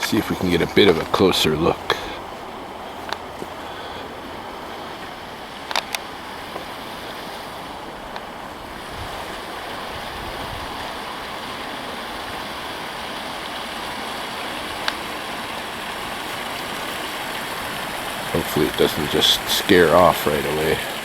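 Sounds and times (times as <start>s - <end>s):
water pouring into river: 0.0s - 21.0s
faint sharp ticks: 3.0s - 7.5s.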